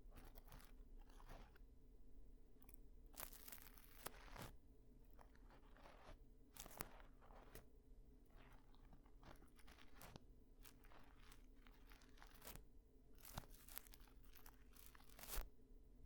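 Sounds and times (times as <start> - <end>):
ear-cleaning tool scraping: 5.2 - 7.6, 8.3 - 12.6, 13.2 - 15.4.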